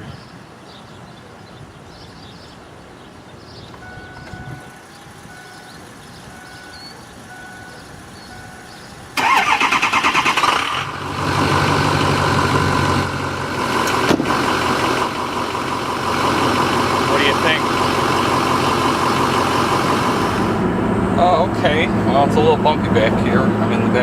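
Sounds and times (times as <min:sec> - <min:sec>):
short beeps: 0:03.8 - 0:08.8
diesel engine idling: 0:03.8 - 0:24.0
diesel engine starter cranking: 0:07.6 - 0:20.7.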